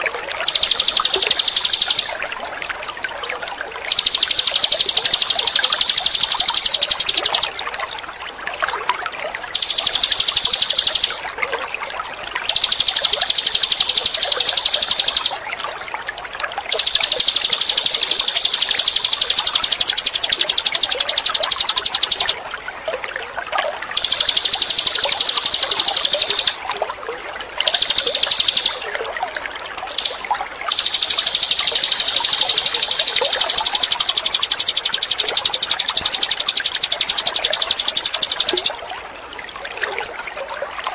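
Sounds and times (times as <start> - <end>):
running water trickling: 0.0 - 40.9
songbird buzzing trill: 0.4 - 2.2, 3.9 - 7.6, 9.6 - 11.2, 12.5 - 15.4, 16.7 - 22.4, 24.0 - 26.7, 27.6 - 28.9, 30.0 - 38.7.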